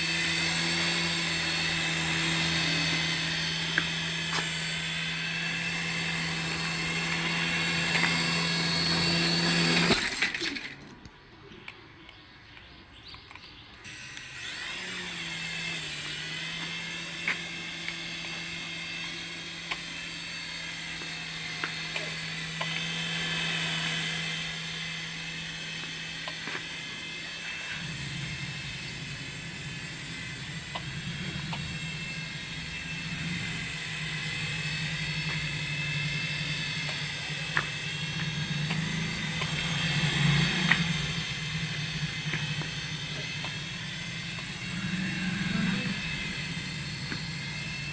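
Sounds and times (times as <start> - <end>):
toy motors whining: 0.0 - 11.2, 13.8 - 47.9
low hum: 17.8 - 47.9.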